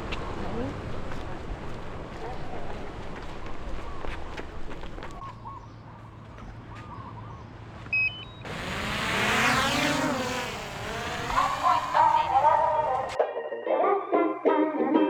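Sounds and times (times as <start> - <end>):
vehicle passing close by: 8.4 - 13.2.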